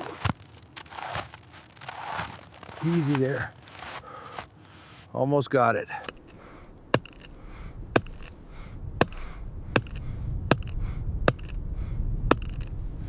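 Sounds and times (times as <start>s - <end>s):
axe chopping wood: 6.0s - 7.4s, 8.0s - 8.4s, 9.0s - 11.6s, 12.3s - 12.7s
low rumble: 6.2s - 13.0s.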